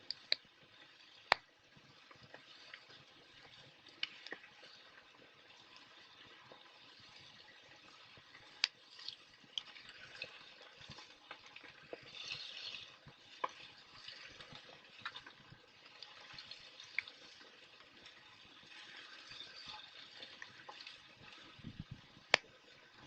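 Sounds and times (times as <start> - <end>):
fire crackles and pops: 0.0 - 23.0
wood fire hissing: 0.0 - 23.0.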